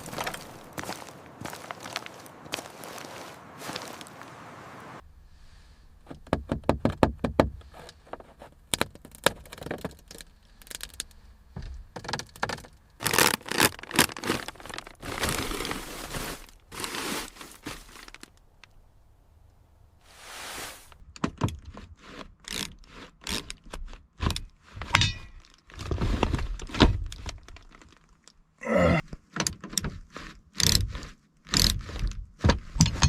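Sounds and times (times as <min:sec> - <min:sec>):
scraping: 0:00.0 - 0:04.3
sharp clicks and knocks: 0:29.1 - 0:33.0.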